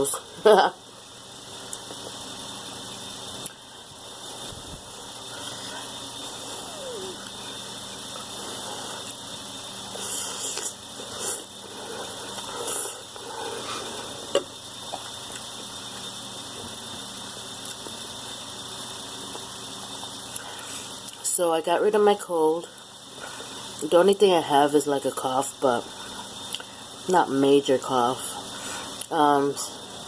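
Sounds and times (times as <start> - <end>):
steady hiss: 0.9 - 24.0.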